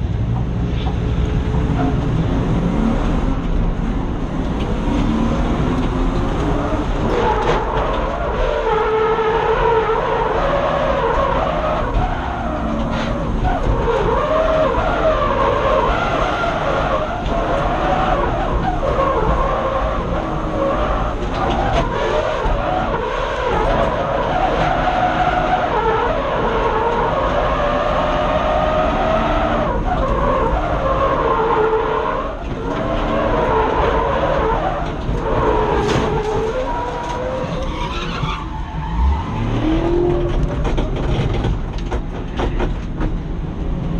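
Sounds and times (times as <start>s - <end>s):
car engine at high revs: 0.0s - 43.9s
tyre squeal: 6.5s - 41.0s.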